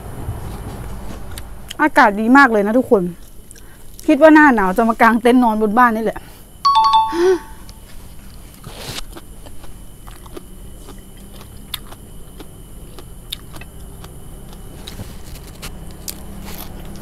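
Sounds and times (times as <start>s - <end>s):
low steady hum: 0.0s - 5.7s, 6.6s - 8.4s
crunchy chewing: 7.9s - 17.0s.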